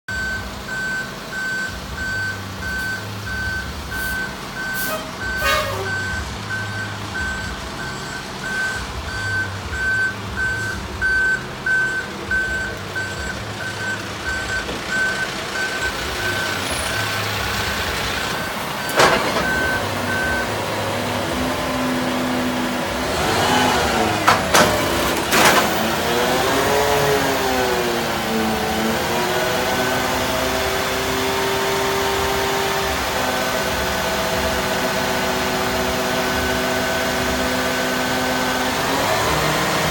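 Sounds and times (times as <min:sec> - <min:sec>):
reversing alarm beeps: 0:00.1 - 0:17.2, 0:18.3 - 0:20.6
hydraulic whine: 0:00.1 - 0:39.9
truck engine running: 0:00.1 - 0:39.9.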